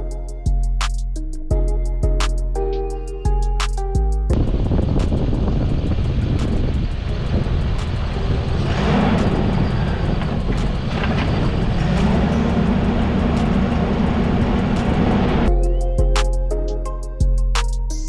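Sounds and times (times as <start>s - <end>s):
truck engine rumble: 3.8s - 15.5s.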